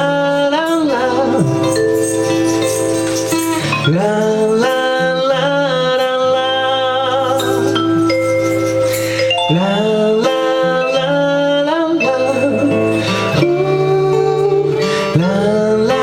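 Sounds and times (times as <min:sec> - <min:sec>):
instrumental accompaniment: 0:00.0 - 0:16.0
person singing blues: 0:00.0 - 0:16.0.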